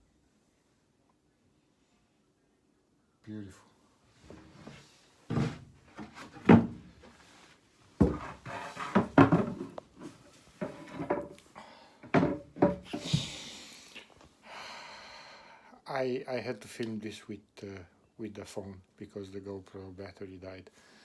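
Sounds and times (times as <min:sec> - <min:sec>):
soft rustle: 0:03.9 - 0:11.6
knocks and rubbing: 0:05.3 - 0:07.2, 0:08.0 - 0:11.4, 0:12.1 - 0:13.3.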